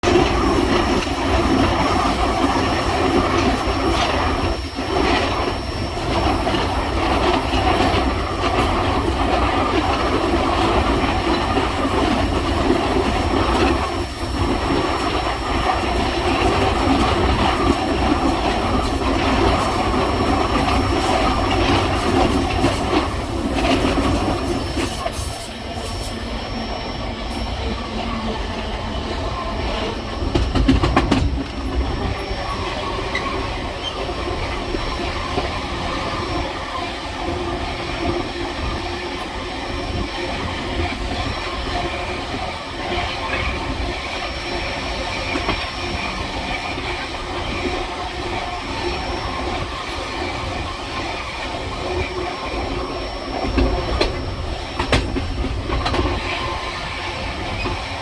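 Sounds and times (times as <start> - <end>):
train wheels rumbling on track: 0.0 - 58.0
train wheels squealing: 0.1 - 38.3.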